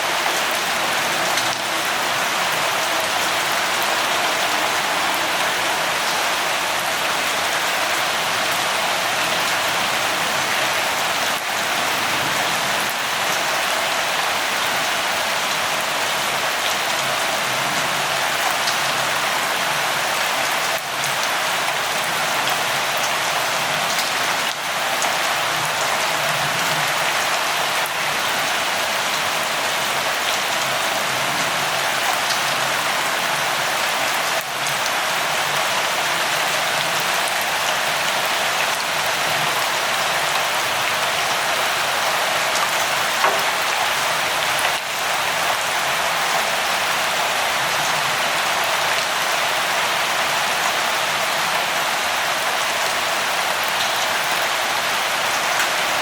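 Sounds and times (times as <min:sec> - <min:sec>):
light rain falling: 0:00.0 - 0:56.0.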